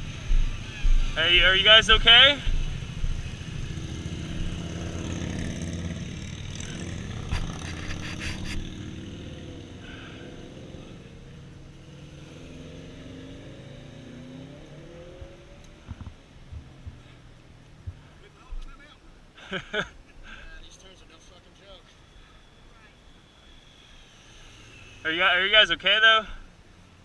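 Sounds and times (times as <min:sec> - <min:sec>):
vehicle engine running: 0:00.0 - 0:12.2, 0:15.1 - 0:18.8.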